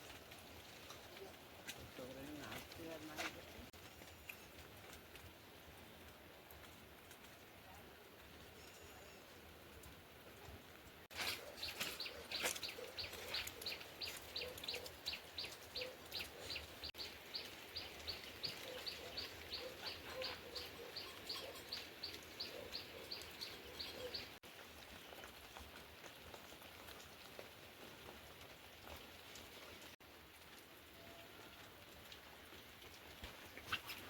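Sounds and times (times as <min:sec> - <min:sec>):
steady rain: 0:00.0 - 0:34.0
bird chirping: 0:11.2 - 0:24.4.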